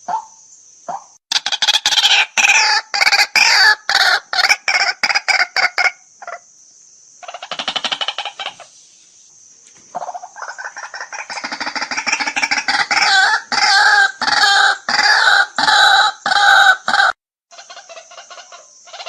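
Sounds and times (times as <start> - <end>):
waterhen harsh calls: 1.3 - 6.4, 7.2 - 8.8, 10.0 - 19.0
steady high hiss: 6.0 - 13.7.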